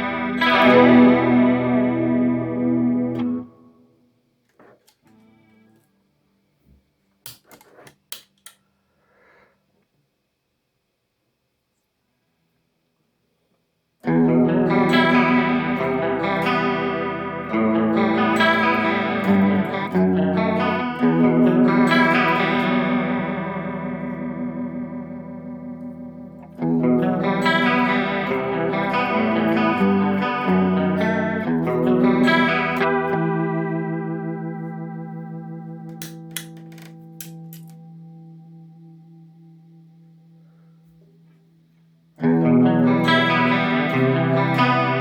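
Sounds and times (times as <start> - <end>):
electric guitar with chorus effect: 0.0 - 6.0, 14.0 - 45.0.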